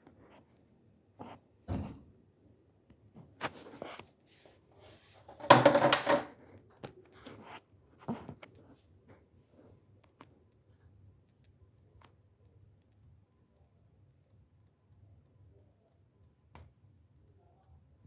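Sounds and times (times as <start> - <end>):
objects knocking and clattering: 5.2 - 6.4.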